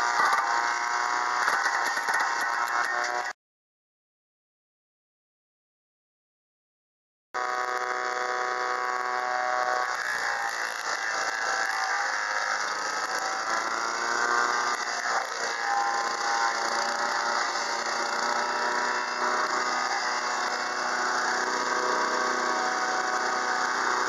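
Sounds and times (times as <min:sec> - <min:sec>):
tractor engine running: 0:00.0 - 0:03.3
wood chipper chipping: 0:00.0 - 0:03.3, 0:07.4 - 0:24.0.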